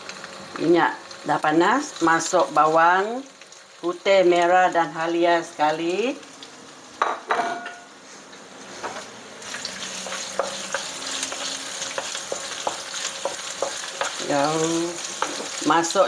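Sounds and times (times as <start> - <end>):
vegetables sizzling in hot oil: 0.0 - 16.0
wooden spatula tapping a pan: 10.4 - 14.2.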